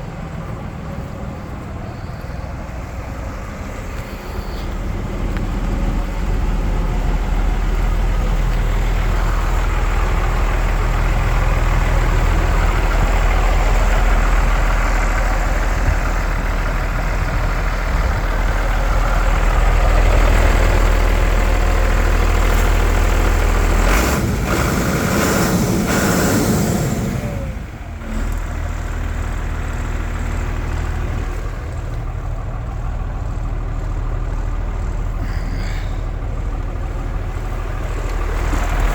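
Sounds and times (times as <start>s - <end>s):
diesel engine humming: 0.0s - 38.9s.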